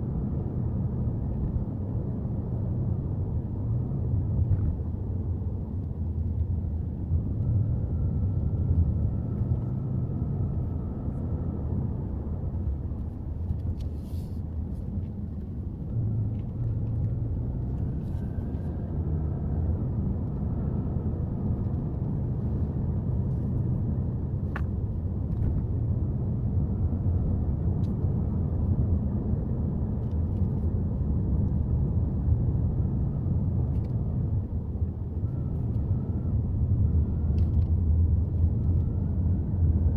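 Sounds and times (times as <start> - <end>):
road and engine rumble: 0.0 - 39.9.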